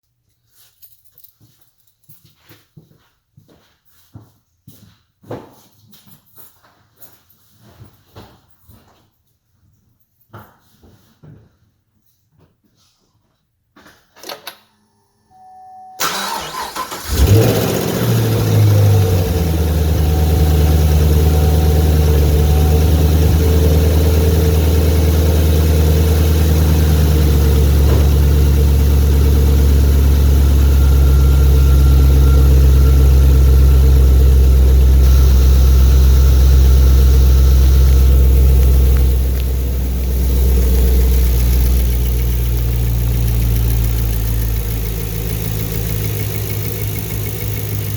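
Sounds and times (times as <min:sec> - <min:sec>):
car engine idling: 0:16.0 - 0:47.9
car starter cranking: 0:16.0 - 0:47.9
valve lifter ticking: 0:34.8 - 0:47.9.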